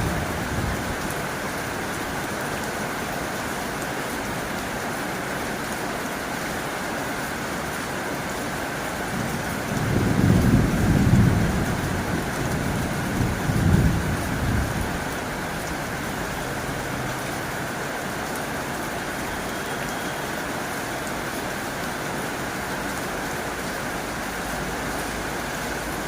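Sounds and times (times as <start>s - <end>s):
low rumbles of thunder: 0.0s - 1.1s, 9.1s - 15.2s
heavy rain on a tin roof: 0.0s - 26.0s.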